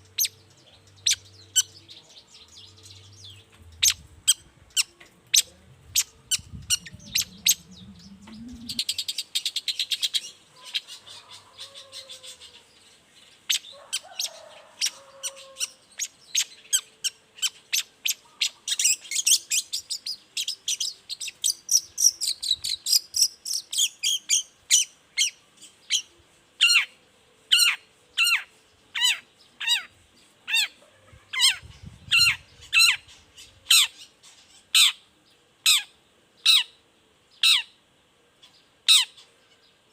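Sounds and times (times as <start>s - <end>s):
shrike calling: 0.0s - 12.6s
sharp downward-slurred bird calls: 3.2s - 12.6s, 30.5s - 35.0s, 35.6s - 36.8s, 37.4s - 37.8s
bird chattering: 3.8s - 11.0s.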